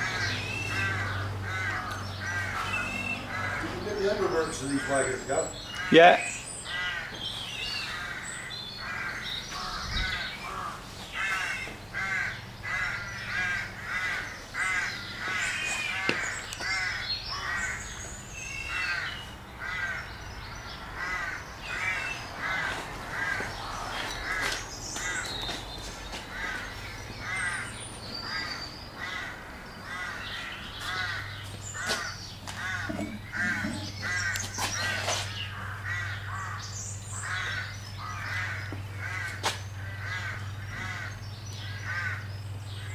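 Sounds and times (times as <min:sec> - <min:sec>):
bird harsh caw-like calls: 0:00.0 - 0:42.9
sharp knocks: 0:32.8 - 0:34.2.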